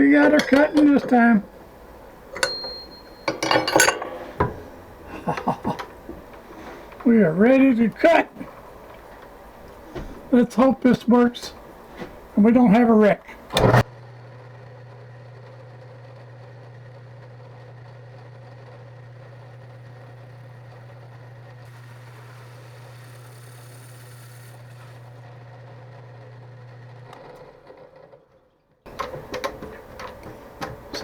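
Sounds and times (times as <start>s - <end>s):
machine tool humming: 0.0s - 13.8s.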